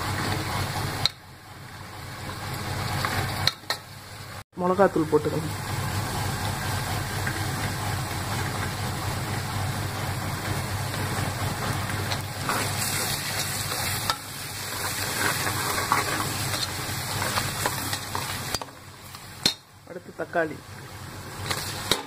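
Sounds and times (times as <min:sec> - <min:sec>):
masala sizzling in oil: 0:00.0 - 0:22.0
ladle scraping pot: 0:12.1 - 0:18.7.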